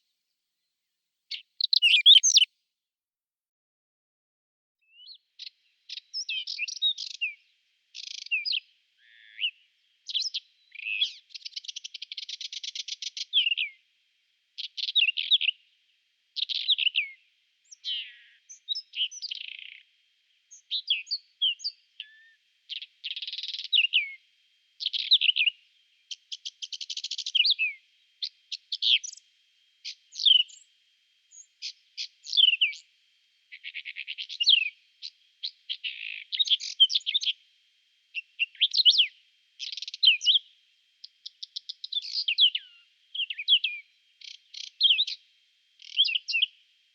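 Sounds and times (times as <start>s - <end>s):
bird singing scratchy phrases: 1.3s - 2.5s, 4.9s - 7.4s, 8.0s - 13.8s, 14.6s - 15.6s, 16.4s - 19.8s, 20.5s - 24.2s, 24.8s - 25.5s, 26.1s - 29.2s, 29.8s - 30.7s, 31.3s - 32.8s, 33.5s - 37.4s, 38.2s - 45.2s, 45.8s - 46.6s.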